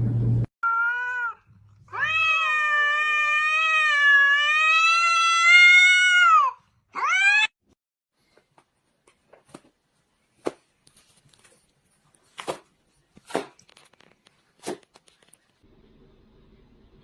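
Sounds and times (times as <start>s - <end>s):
cat meowing and yowling: 0.6s - 7.5s.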